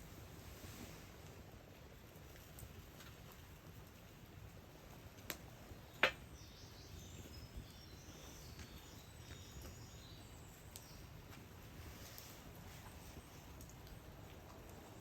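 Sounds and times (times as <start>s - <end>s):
small birds chirping: 4.8s - 15.0s.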